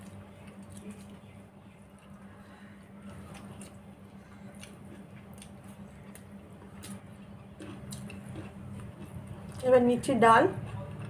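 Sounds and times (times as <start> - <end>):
person chewing food: 0.0 - 9.6, 10.6 - 11.0.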